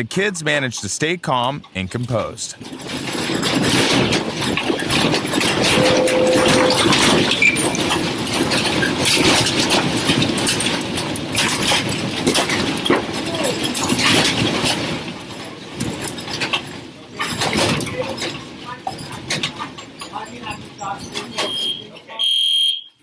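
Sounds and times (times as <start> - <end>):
building rattling and rumbling: 2.5 - 21.3.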